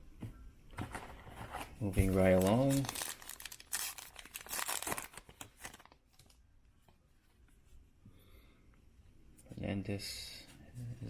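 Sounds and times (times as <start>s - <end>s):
wrapper tearing and crinkling: 2.0s - 6.4s.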